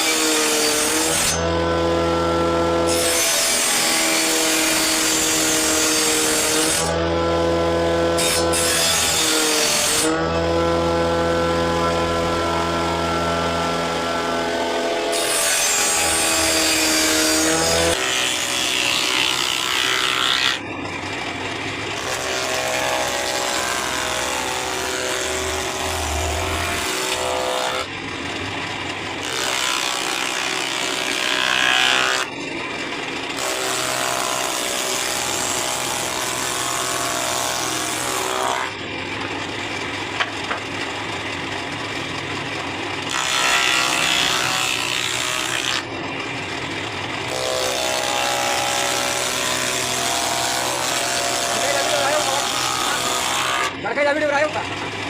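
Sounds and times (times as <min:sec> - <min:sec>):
electric power tool whine: 0:00.0 - 0:55.0.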